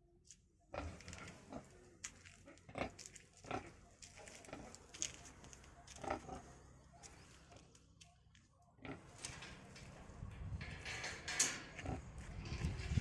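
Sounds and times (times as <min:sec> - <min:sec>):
pigs grunting: 0:00.7 - 0:07.7, 0:08.8 - 0:09.5, 0:11.8 - 0:12.8.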